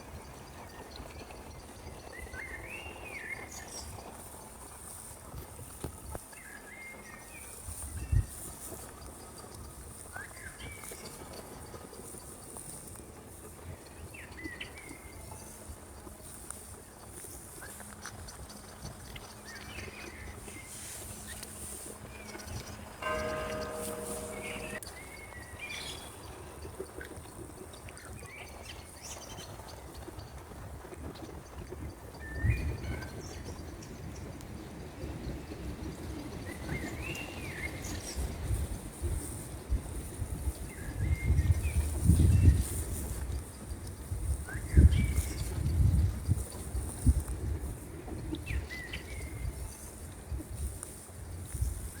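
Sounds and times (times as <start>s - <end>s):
birds chirping: 22.2s - 24.8s.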